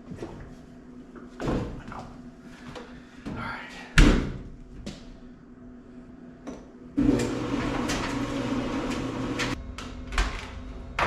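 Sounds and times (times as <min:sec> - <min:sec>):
dryer running: 0:07.0 - 0:11.0.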